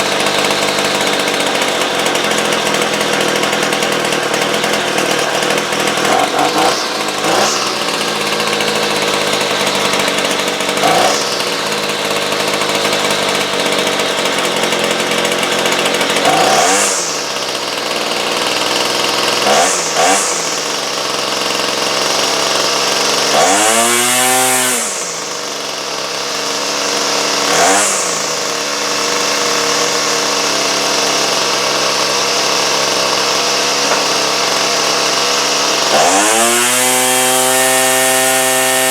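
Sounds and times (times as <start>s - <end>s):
two-stroke chainsaw engine revving: 0.0s - 38.9s.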